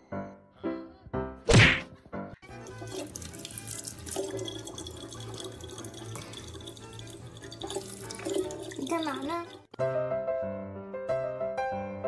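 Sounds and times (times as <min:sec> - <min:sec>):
tap water splashing into bottle: 0:02.6 - 0:09.7.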